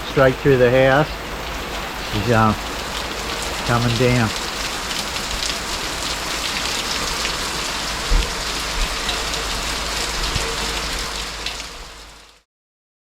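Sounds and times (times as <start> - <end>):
heavy rain pouring: 0.0 - 12.5
wind buffeting microphone: 5.2 - 12.0.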